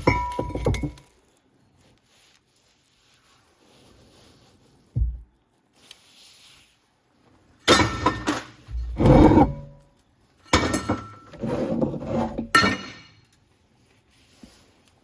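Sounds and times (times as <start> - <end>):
metal clanking and clinking: 10.5 - 13.2.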